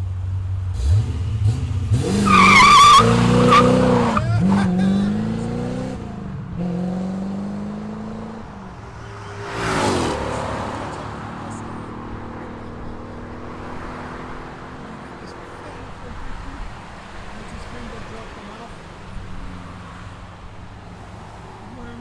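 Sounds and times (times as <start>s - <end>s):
car engine accelerating hard: 0.7s - 20.0s
tire squeal: 1.9s - 5.3s, 8.7s - 11.8s.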